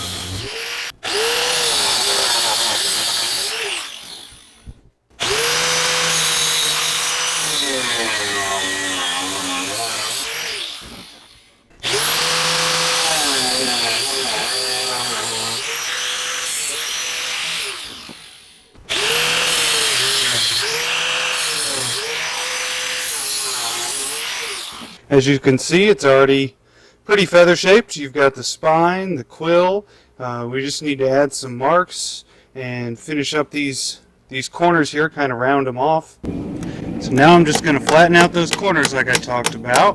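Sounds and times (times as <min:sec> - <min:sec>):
angle grinder cutting metal: 0:00.0 - 0:25.0, 0:36.2 - 0:39.9.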